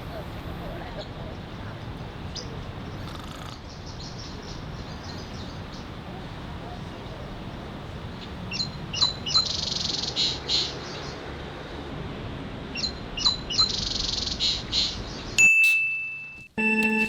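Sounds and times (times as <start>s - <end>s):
songbird chirping and trilling: 1.0s - 11.2s, 12.8s - 15.4s
high-pitched tone: 15.4s - 17.0s.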